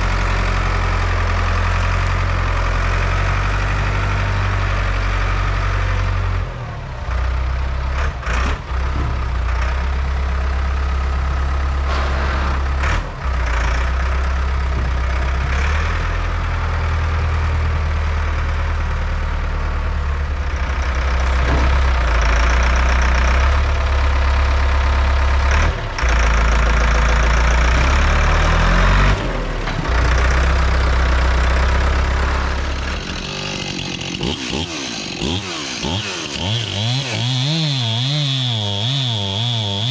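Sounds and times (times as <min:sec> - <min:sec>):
chainsaw cutting logs: 0:32.0 - 0:39.9.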